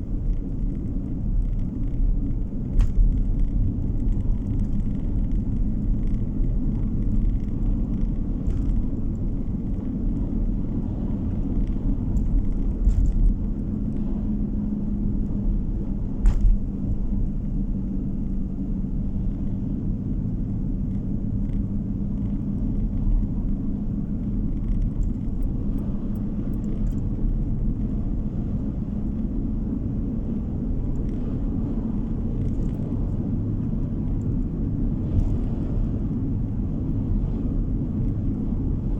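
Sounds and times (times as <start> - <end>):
car interior road rumble: 0.0 - 38.9.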